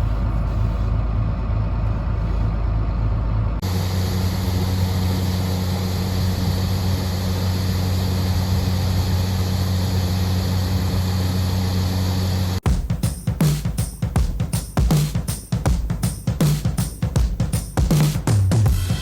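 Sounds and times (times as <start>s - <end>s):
engine drone: 0.0s - 12.6s
machinery engine humming: 0.0s - 12.6s.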